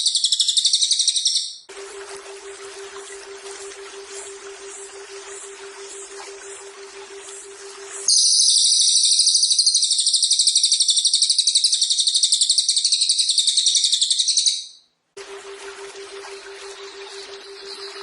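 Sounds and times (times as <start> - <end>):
high-pitched buzzing bird trill: 4.7 - 14.6, 16.6 - 18.0.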